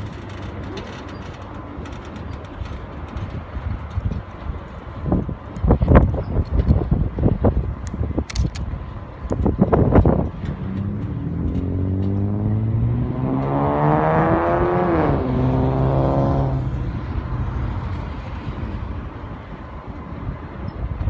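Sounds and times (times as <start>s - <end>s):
engine passing by: 10.0s - 20.3s.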